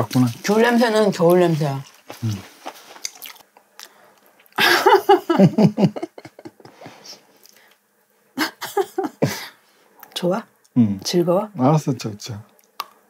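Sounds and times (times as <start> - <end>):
people chewing: 0.1 - 4.6
people laughing: 4.6 - 7.2, 8.4 - 9.4.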